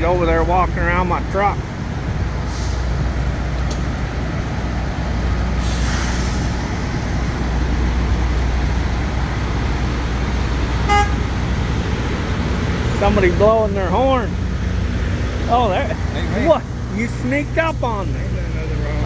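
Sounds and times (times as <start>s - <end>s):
diesel trucks idling: 0.0s - 19.0s
air hiss: 2.4s - 3.2s, 5.4s - 9.0s
vehicle horn blast: 10.8s - 11.4s.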